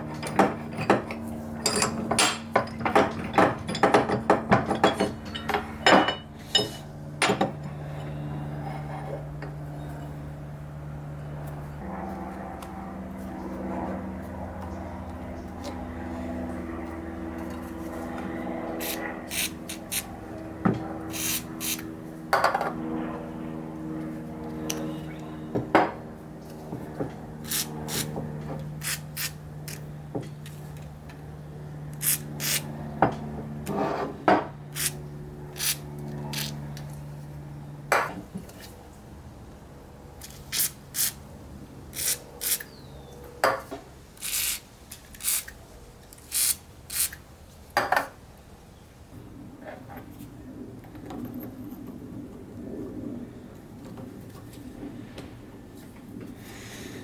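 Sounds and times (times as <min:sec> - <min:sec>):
steady low hum: 0:00.0 - 0:57.0
steel parts clinking and clanking: 0:00.2 - 0:07.8.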